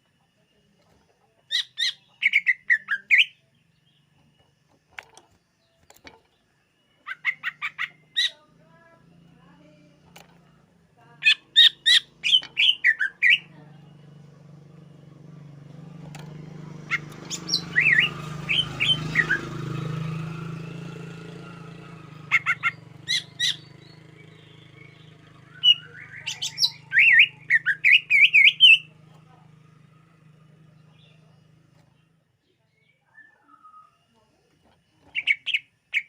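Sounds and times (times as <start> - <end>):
bird chirping and whistling: 11.2 - 13.5, 16.9 - 19.5, 22.2 - 24.0, 24.7 - 28.9.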